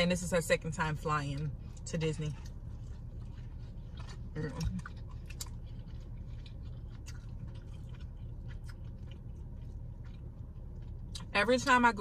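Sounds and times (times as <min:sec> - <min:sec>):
low hum inside car: 0:00.0 - 0:12.0
people chewing: 0:01.4 - 0:11.7
wet mouth clicks and smacks: 0:02.4 - 0:11.3.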